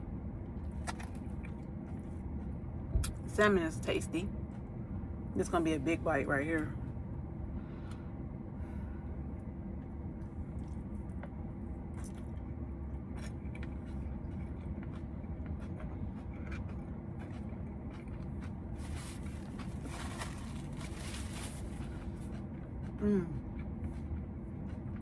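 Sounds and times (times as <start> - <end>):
steady low hum: 0.0 - 25.0
person chewing food: 0.5 - 2.8, 9.4 - 25.0.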